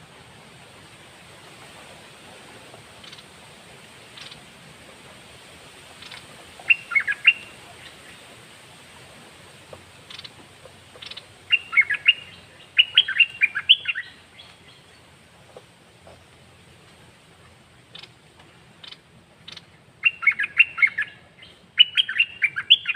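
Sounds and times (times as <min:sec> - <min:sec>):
background hiss: 0:00.0 - 0:22.9
bird chirping: 0:06.0 - 0:08.2, 0:10.1 - 0:10.4, 0:11.0 - 0:15.1, 0:18.8 - 0:22.9.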